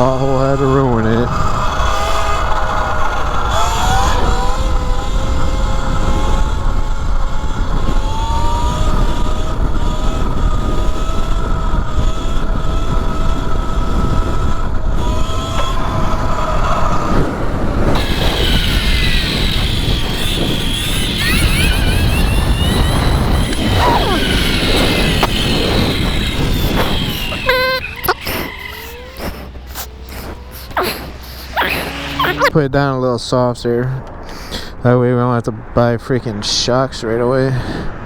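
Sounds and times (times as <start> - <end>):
electric motor whining: 0.0 - 32.5
wind rush on microphone: 0.0 - 32.6, 34.1 - 38.0.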